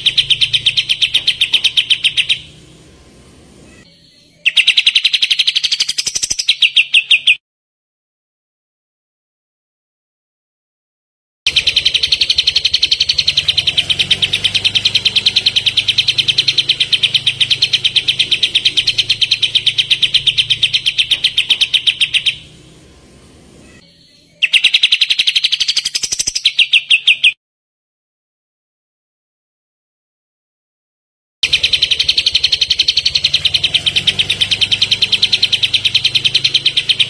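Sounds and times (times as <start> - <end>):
songbird rapid trill: 0.0 - 7.4, 11.5 - 27.4, 31.4 - 37.0.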